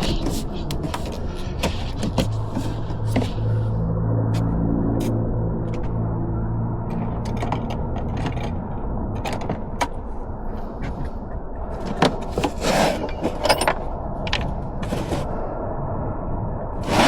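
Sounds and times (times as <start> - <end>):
scrape: 0.0 - 3.8, 12.3 - 13.4, 14.8 - 15.4
tools clicking and clinking: 12.0 - 15.2.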